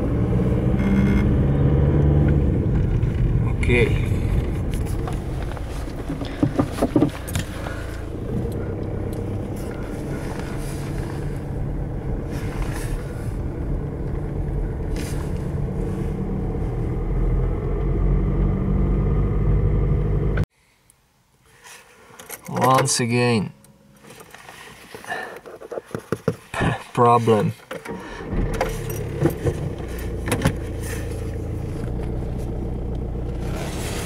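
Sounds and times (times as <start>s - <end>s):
car engine idling: 0.0s - 20.4s.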